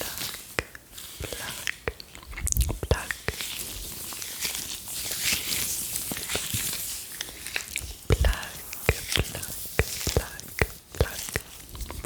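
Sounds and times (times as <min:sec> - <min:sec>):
soft hissing noise: 0:00.0 - 0:12.0
lip pops: 0:00.3 - 0:03.5
wet tongue clicks: 0:00.5 - 0:03.5.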